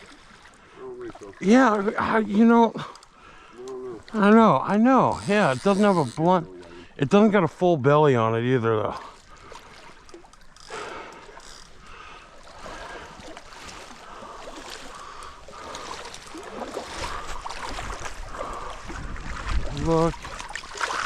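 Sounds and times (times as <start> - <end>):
creek water running and splashing: 0.0 - 7.0, 8.1 - 21.0.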